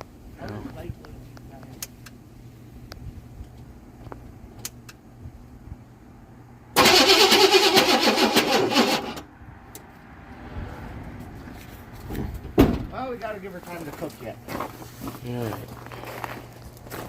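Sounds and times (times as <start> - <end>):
starter cranking engine: 6.8 - 9.3.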